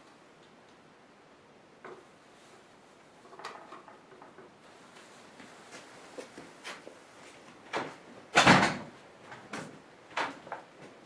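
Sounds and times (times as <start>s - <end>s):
objects knocking and thumping: 3.2s - 4.5s, 7.7s - 10.7s.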